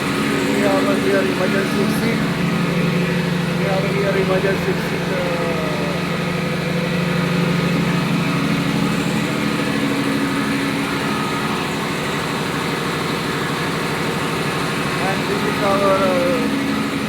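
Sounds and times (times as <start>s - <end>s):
engine room machinery drone: 0.0s - 17.0s.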